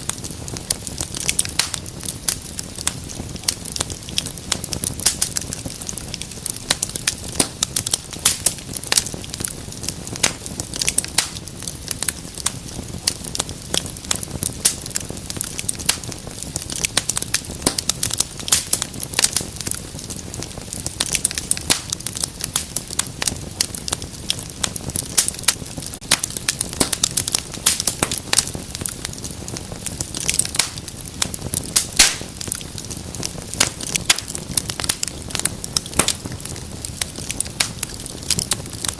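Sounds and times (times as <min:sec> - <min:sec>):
low rumble of flames: 0:00.0 - 0:38.9
wood fire crackling: 0:00.0 - 0:38.9.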